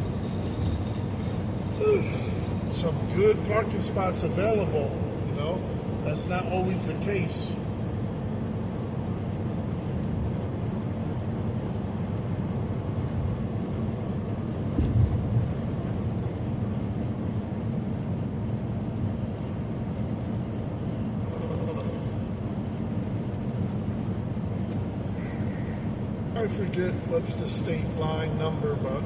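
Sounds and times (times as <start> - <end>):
truck road and engine rumble: 0.0 - 29.0.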